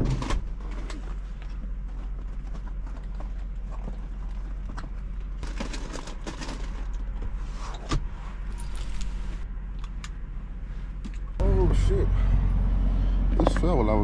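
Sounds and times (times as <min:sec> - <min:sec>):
items clicking and rattling: 0:00.0 - 0:07.2
steady low hum: 0:00.0 - 0:14.0.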